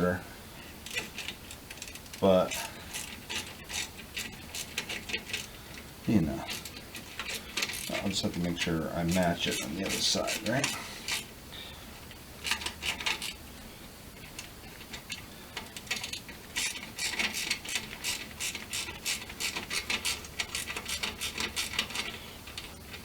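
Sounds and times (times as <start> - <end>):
ratchet wrench clicking: 0.8 - 5.5, 6.5 - 8.0, 9.1 - 11.3, 12.4 - 13.4, 15.6 - 22.7.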